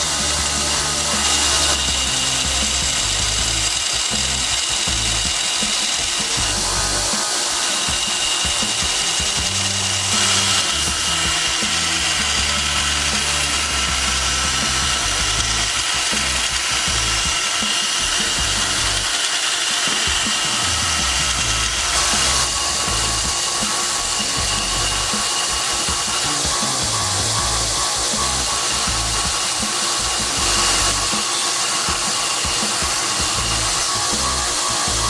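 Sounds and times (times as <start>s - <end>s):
background music: 0.0s - 35.0s
power tool whining: 0.0s - 35.0s.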